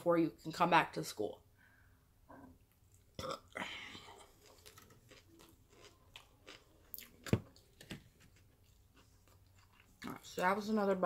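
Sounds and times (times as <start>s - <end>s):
person chewing: 2.7s - 10.3s.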